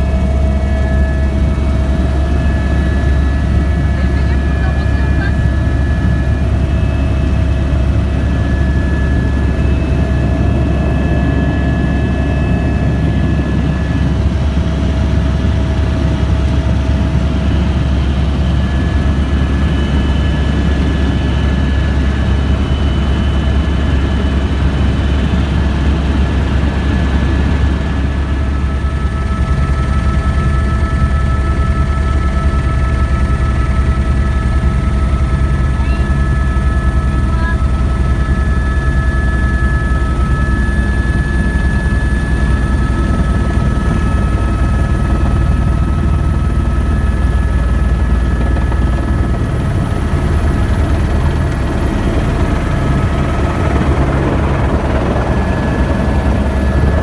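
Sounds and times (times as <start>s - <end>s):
helicopter rotor and engine drone: 0.0s - 57.0s.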